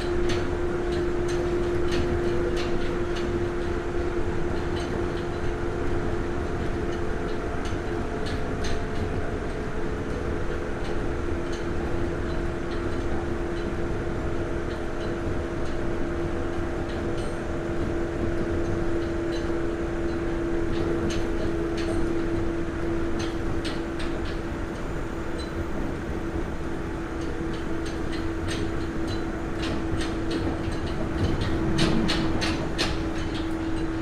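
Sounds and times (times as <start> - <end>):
electric train running: 0.0 - 34.0
sharp clicks and rattles: 27.5 - 34.0.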